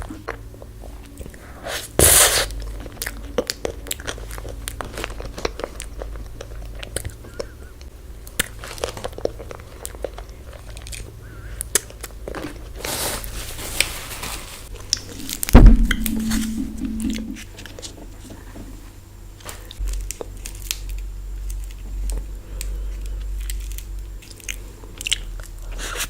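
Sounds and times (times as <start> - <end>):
chewing crisp ice cream: 21.5 - 26.0.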